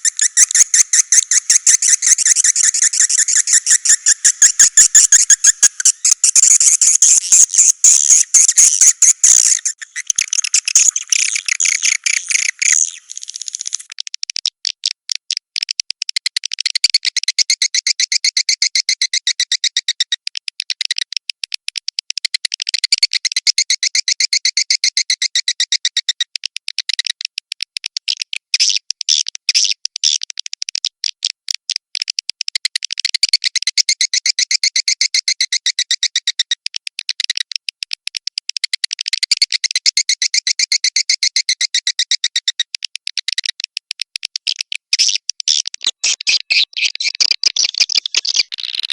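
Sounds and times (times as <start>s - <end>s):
swiftlets chirping: 0.0s - 13.9s.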